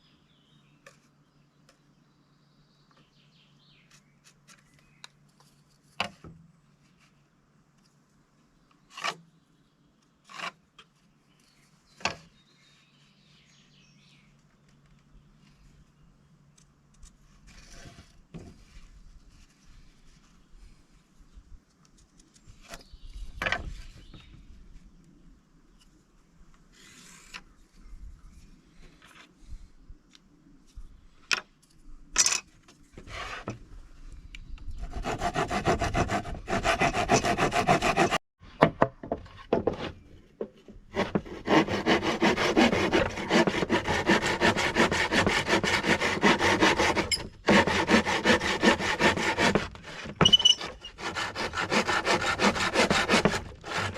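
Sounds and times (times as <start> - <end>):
knocks and handling of wood: 4.2 - 6.5, 36.0 - 53.9
saw cutting through wood: 34.8 - 38.2, 40.9 - 53.9.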